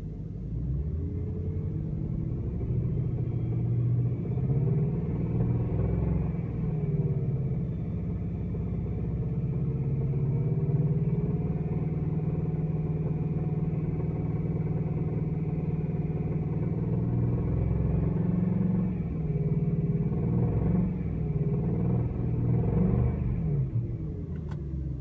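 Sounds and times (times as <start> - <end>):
car engine running: 18.4 - 25.0.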